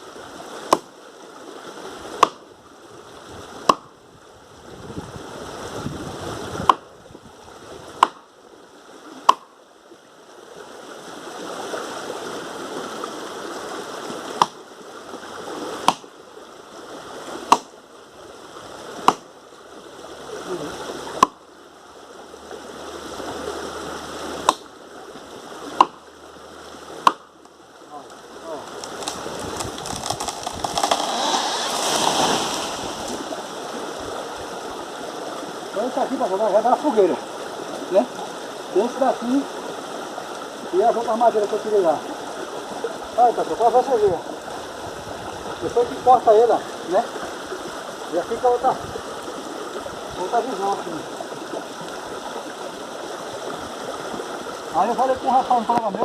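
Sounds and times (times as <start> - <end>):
axe chopping wood: 0.7 - 0.9, 2.2 - 2.5, 3.6 - 3.9, 6.6 - 6.9, 8.0 - 8.3, 9.2 - 9.5, 14.4 - 14.6, 15.8 - 16.1, 17.4 - 17.8, 19.0 - 19.3, 21.2 - 21.4, 24.4 - 24.7, 25.7 - 26.0, 27.0 - 27.3, 28.8 - 31.4
rustling: 28.5 - 33.4.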